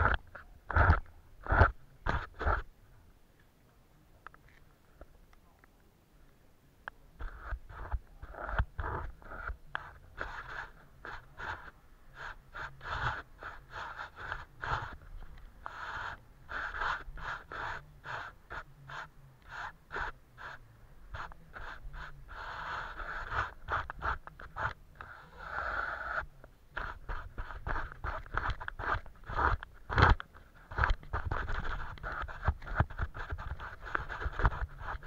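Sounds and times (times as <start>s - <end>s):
paintbrush stroking paper: 7.2s - 35.0s.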